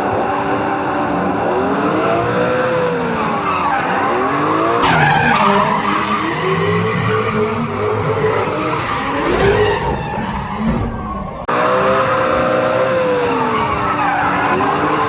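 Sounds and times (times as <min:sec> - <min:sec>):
car engine revving hard: 0:00.0 - 0:10.6, 0:11.4 - 0:15.0
tyres squealing: 0:03.1 - 0:11.5, 0:12.7 - 0:15.0.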